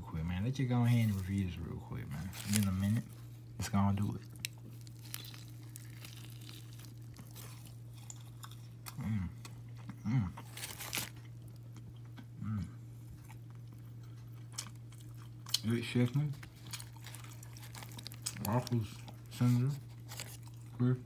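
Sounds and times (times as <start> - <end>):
steady low hum: 0.0 - 21.0
crunchy chewing: 2.1 - 12.3, 13.0 - 20.8
person humming while chewing: 8.9 - 10.5.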